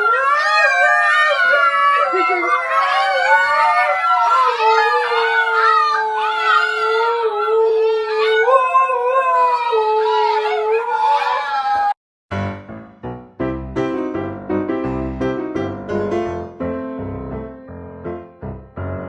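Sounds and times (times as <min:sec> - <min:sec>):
dog howling: 0:00.0 - 0:12.0.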